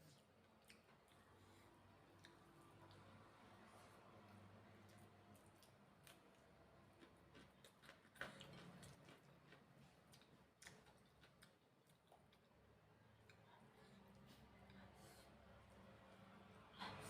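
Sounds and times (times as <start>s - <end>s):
person eating: 4.2s - 12.6s.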